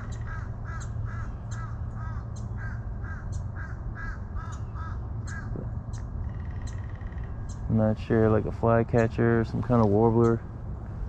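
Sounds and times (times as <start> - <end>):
bird calling: 0.0 - 8.0
steady low hum: 0.0 - 11.0.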